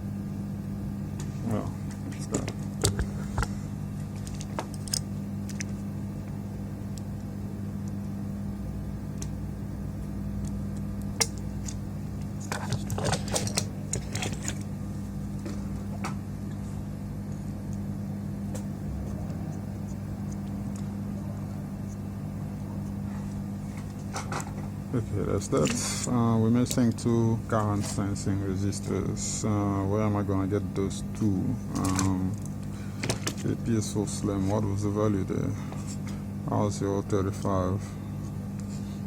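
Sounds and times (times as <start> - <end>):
low machine hum: 0.0 - 39.0
clicks of small parts handled: 4.2 - 5.8.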